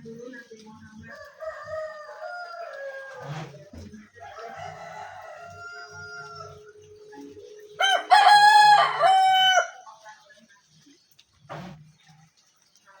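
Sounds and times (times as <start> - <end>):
rooster crowing: 4.2 - 6.7, 7.8 - 9.8.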